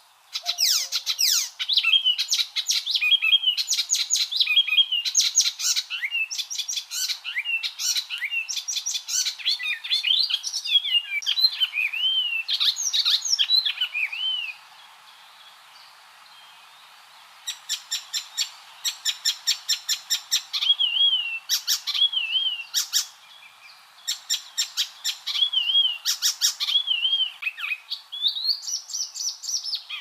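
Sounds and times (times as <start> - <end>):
warbler singing: 0.3 - 14.6, 17.5 - 30.0.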